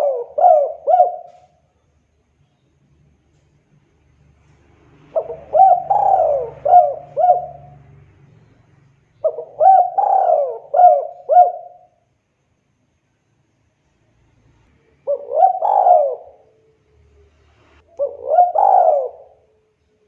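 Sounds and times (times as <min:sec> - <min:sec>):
dove cooing: 0:00.0 - 0:01.6, 0:05.1 - 0:08.0, 0:09.2 - 0:11.9, 0:15.0 - 0:16.6, 0:17.9 - 0:19.7.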